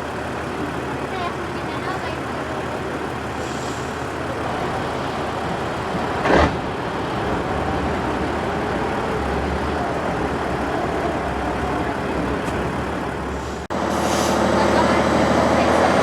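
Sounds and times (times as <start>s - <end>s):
truck engine rumbling: 0.0s - 16.0s
short loud engine burst: 13.4s - 16.0s.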